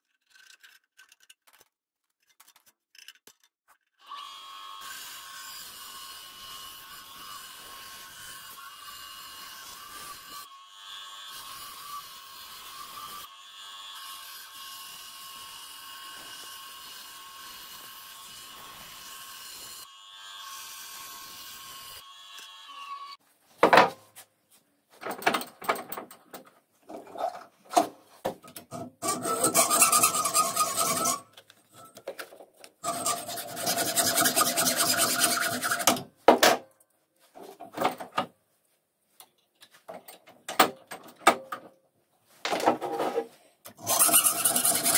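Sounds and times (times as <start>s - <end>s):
rasp scraping across wood: 29.0s - 31.3s, 32.8s - 36.0s, 42.8s - 44.9s.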